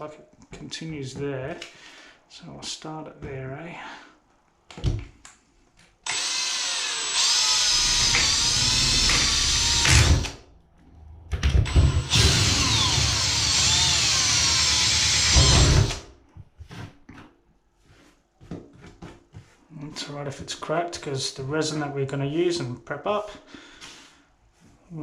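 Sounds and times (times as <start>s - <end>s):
power drill boring through fiberglass: 6.0s - 10.4s, 11.6s - 16.0s.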